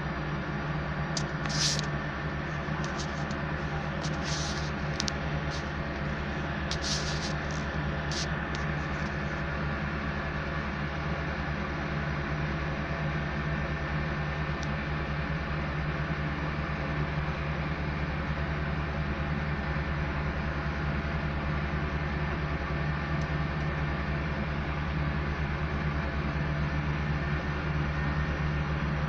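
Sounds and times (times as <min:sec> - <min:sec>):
diesel engine droning: 0:00.0 - 0:29.0
short high hisses: 0:04.1 - 0:04.8, 0:06.7 - 0:08.3.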